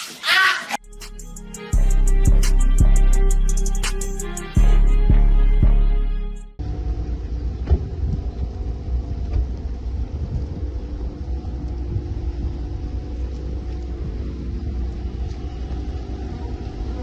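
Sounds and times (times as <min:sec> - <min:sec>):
car rumble: 0:06.6 - 0:17.0.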